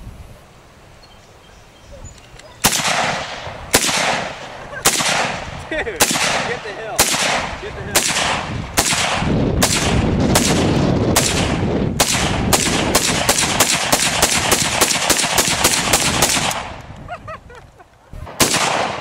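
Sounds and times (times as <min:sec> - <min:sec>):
rapid gunshots: 0:02.6 - 0:16.8, 0:18.3 - 0:19.0
single gunshot: 0:02.6 - 0:16.8, 0:18.3 - 0:19.0.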